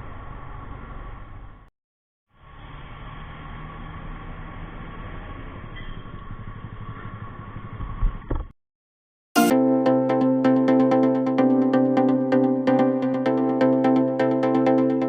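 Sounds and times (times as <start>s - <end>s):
road noise: 2.4s - 8.5s.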